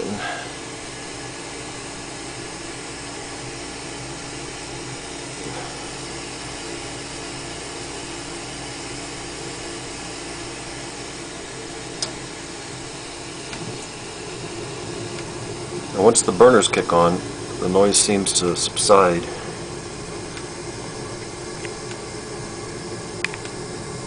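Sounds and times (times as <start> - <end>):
furnace inducer motor humming: 0.0 - 24.0
sharp click: 12.0 - 12.2, 23.2 - 23.6.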